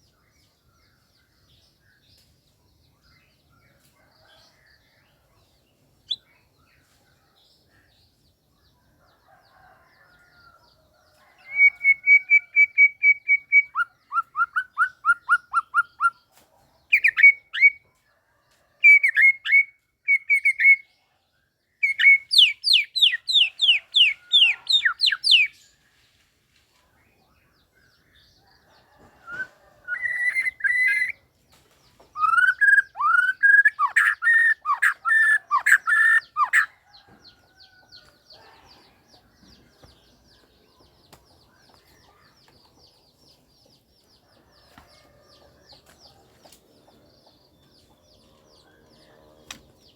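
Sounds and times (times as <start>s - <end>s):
songbird whistling phrases: 29.2s - 31.2s, 32.2s - 36.7s.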